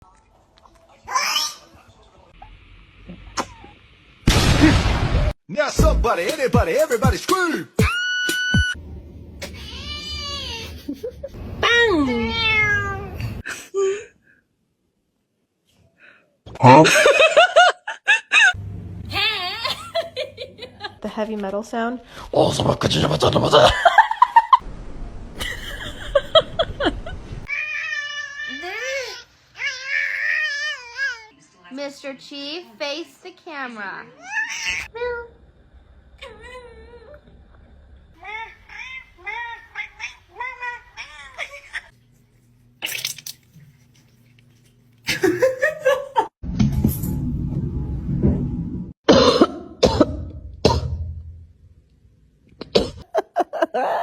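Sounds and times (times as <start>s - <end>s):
cat yowling: 27.5s - 28.9s, 34.2s - 34.9s, 38.2s - 41.9s
sharp coughs: 49.1s - 51.0s, 52.6s - 53.0s.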